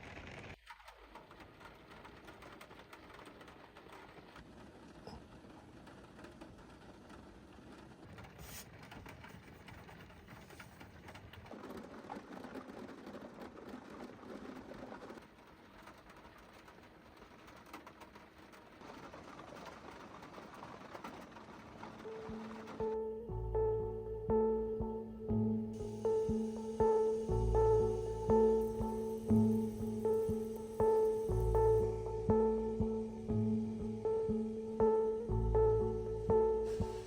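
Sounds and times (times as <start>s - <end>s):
steady background hiss: 25.8s - 35.3s.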